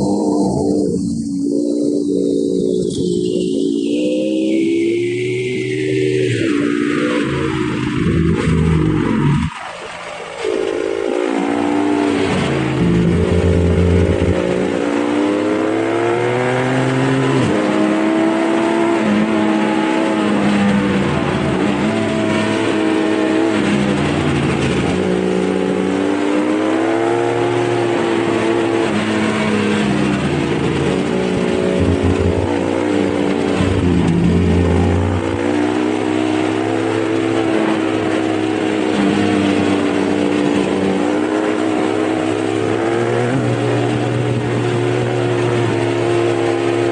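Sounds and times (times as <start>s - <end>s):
dirt bike engine revving: 24.4s - 40.2s.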